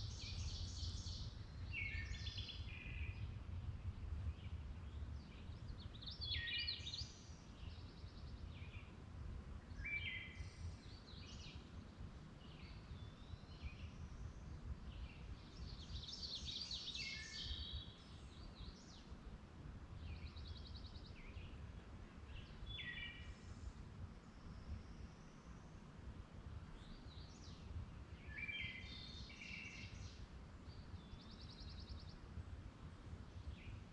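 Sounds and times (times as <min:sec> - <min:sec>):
low steady rumble: 0:00.0 - 0:06.4
birds singing: 0:04.3 - 0:09.0, 0:20.0 - 0:23.7, 0:26.7 - 0:32.2.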